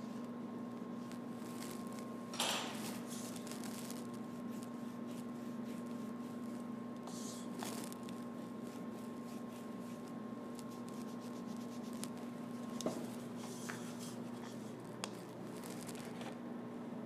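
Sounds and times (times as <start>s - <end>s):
steady electrical hum: 0.0s - 17.0s
paintbrush swishes: 4.3s - 14.6s.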